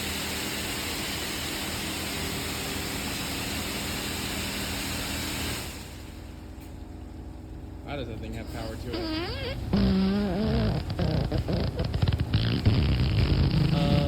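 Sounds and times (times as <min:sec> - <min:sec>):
high-pressure water spray hissing: 0:09.0 - 0:14.0.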